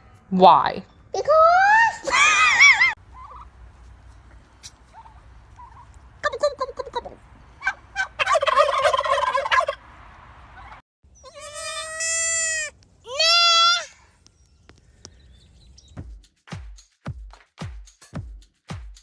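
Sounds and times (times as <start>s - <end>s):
turkey gobbling: 2.7s - 10.8s
goat bleating: 11.2s - 13.9s.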